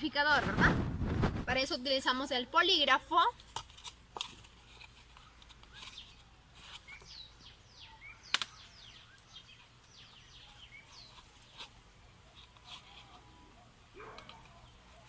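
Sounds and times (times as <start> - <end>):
birds chirping: 4.9 - 15.0.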